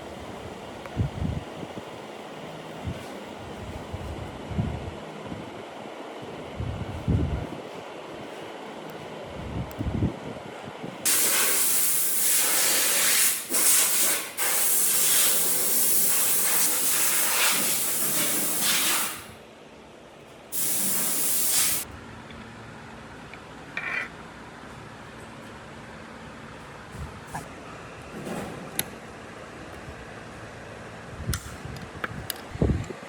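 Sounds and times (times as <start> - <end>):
hissing nozzle spray: 11.1 - 19.3, 20.6 - 21.8.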